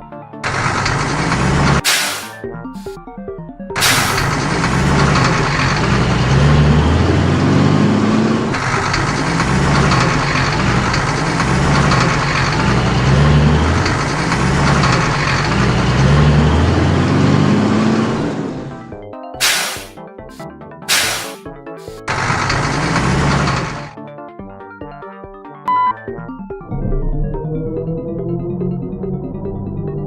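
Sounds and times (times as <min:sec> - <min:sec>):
truck engine running: 0:00.4 - 0:03.0, 0:03.8 - 0:23.9.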